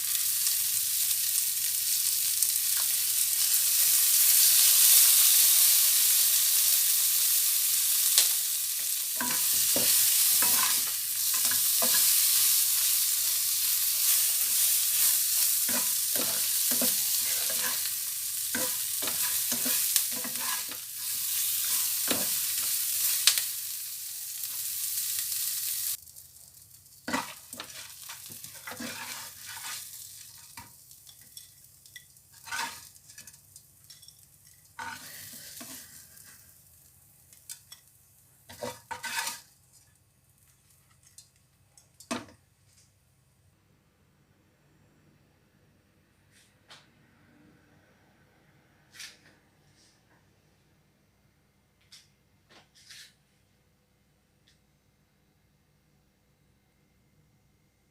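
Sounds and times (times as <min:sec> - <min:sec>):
food sizzling in a pan: 0:00.0 - 0:41.4.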